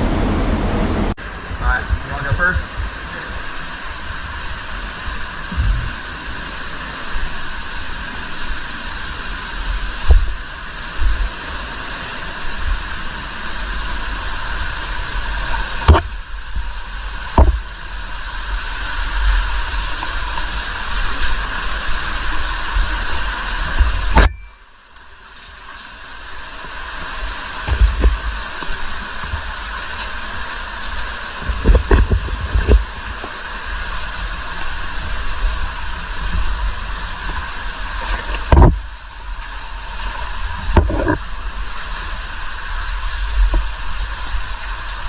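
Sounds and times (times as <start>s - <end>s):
underground waterfall rushing: 0.0s - 45.0s
sharp knocks and low thumps: 5.5s - 6.0s, 17.4s - 17.7s, 31.4s - 33.2s, 38.4s - 38.8s.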